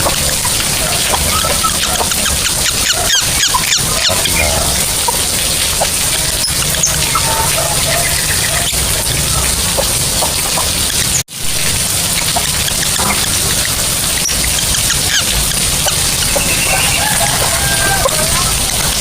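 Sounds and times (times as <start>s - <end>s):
lovebird squeaky chirps: 1.0s - 4.6s.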